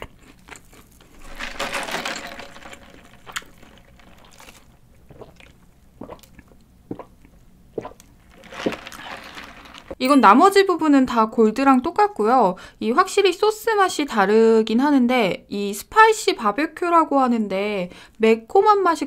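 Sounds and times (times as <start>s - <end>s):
close chewing and mouth sounds: 0.0s - 1.2s, 3.2s - 9.6s.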